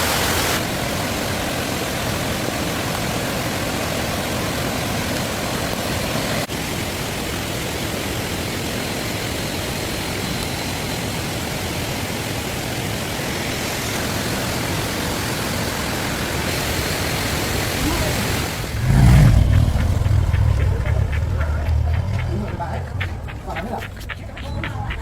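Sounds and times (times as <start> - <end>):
steady rushing noise: 11.8 - 25.0.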